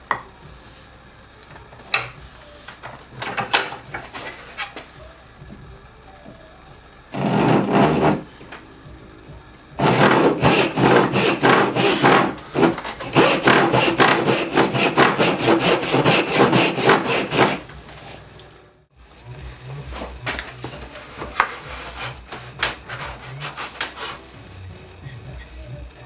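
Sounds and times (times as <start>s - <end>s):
hand saw cutting wood: 7.1s - 8.4s, 9.8s - 18.2s, 20.0s - 24.3s.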